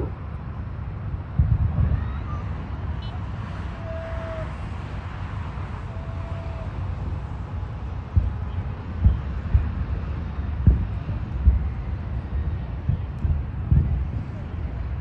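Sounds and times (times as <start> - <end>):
low city rumble: 0.0 - 15.0
horn-like tones: 3.0 - 4.6
low thumps: 10.6 - 11.7, 12.9 - 14.2.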